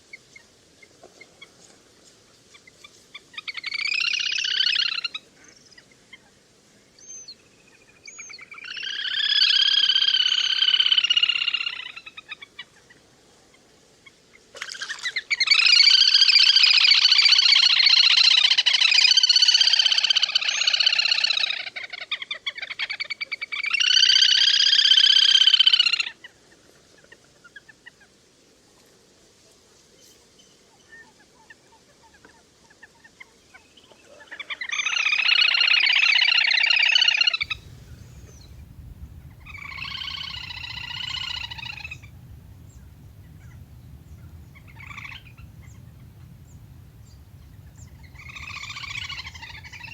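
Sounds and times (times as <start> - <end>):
low hum: 37.4 - 49.9
waterbird trilling calls: 37.4 - 49.9.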